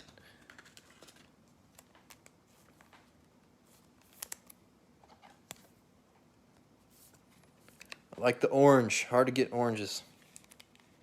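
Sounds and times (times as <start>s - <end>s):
trading cards clicking and rustling: 0.0s - 3.2s, 3.8s - 5.7s, 10.1s - 11.0s.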